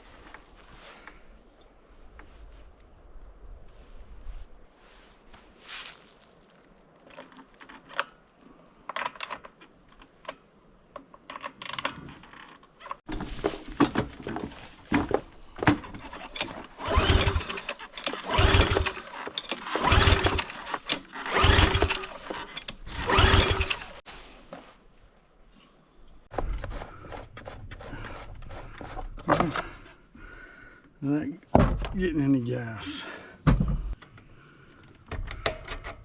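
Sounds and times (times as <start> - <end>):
recoil starter clicks and rattles: 15.6 - 24.0
engine pull-start cranking: 15.9 - 24.0.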